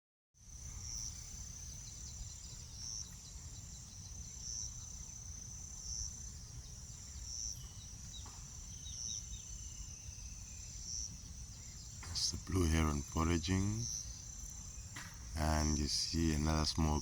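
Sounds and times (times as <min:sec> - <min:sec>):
insect trilling: 0:08.7 - 0:17.0.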